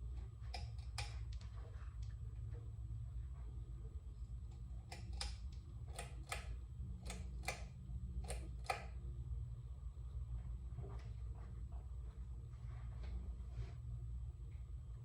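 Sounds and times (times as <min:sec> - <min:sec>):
ceiling fan humming: 0:00.0 - 0:15.0
fan clicking: 0:04.8 - 0:09.0.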